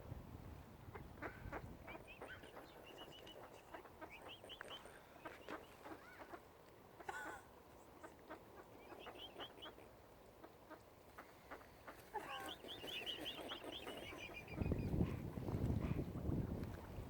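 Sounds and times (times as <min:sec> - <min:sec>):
wind rumble on microphone: 0:00.0 - 0:02.6, 0:14.2 - 0:17.0
lower bird calls: 0:01.2 - 0:06.4, 0:08.6 - 0:09.9, 0:12.1 - 0:16.4
high bird chirping: 0:08.8 - 0:09.7, 0:12.4 - 0:15.1.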